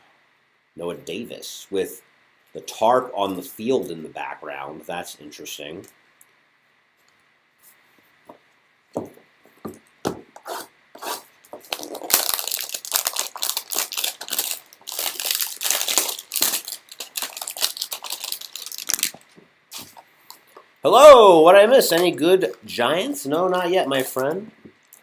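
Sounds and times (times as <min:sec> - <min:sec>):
packaging tearing and crinkling: 0:11.6 - 0:20.0.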